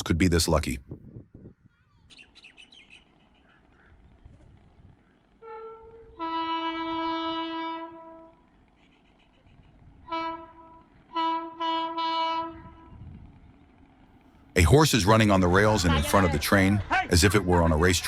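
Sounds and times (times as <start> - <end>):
train horn blasts: 5.4 - 8.4, 10.0 - 13.0.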